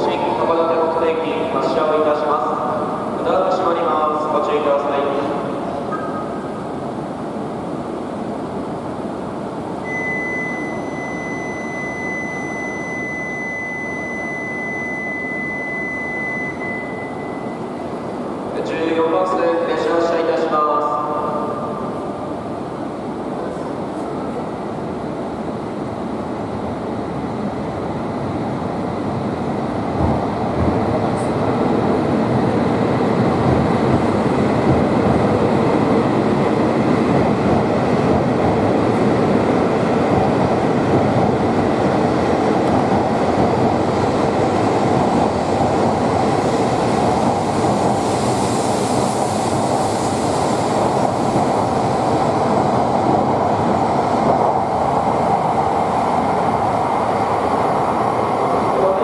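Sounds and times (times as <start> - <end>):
train pulling out: 21.4 - 59.0.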